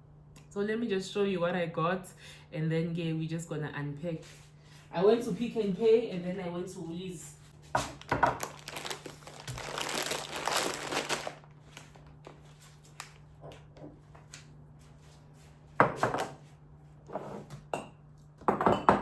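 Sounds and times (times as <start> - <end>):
plastic bag crinkling: 7.8 - 13.3.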